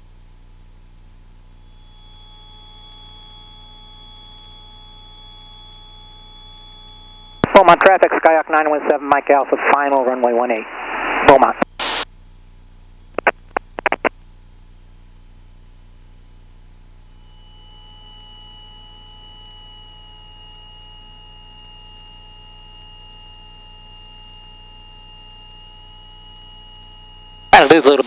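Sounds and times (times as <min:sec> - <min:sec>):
faint high-pitched tone: 0:01.6 - 0:08.0, 0:17.1 - 0:28.0
short clicks: 0:13.2 - 0:14.1.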